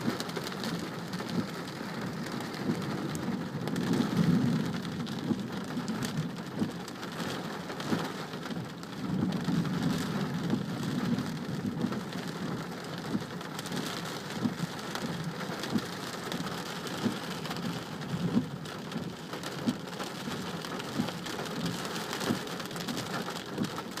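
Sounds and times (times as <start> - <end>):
heavy rain falling: 0.0 - 24.0
thunder rumble: 1.2 - 6.3.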